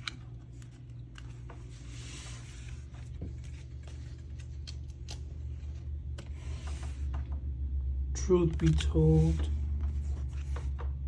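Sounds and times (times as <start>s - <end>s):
cards sliding and clicking: 0.0s - 5.5s
steady low hum: 0.0s - 11.0s.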